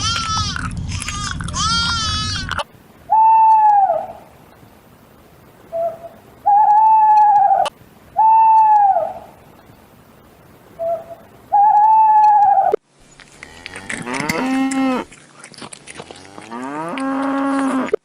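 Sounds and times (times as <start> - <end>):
bird hooting whistled calls: 3.1 - 4.2, 5.7 - 9.3, 10.8 - 12.8.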